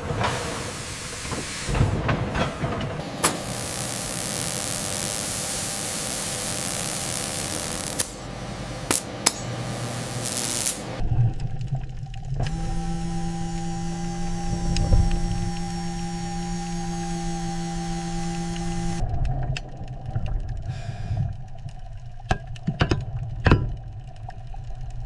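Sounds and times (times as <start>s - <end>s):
steam hissing: 0.0s - 2.4s, 3.0s - 11.0s, 12.5s - 19.0s.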